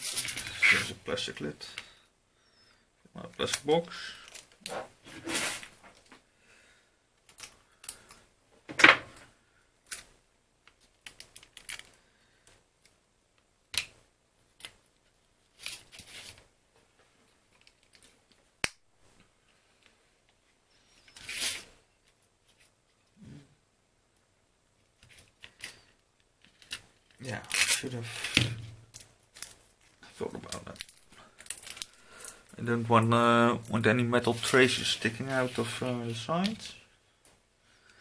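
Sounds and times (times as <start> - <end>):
small parts rustling and tapping: 0.0 - 1.0, 3.2 - 6.2, 7.2 - 23.2, 24.2 - 32.6.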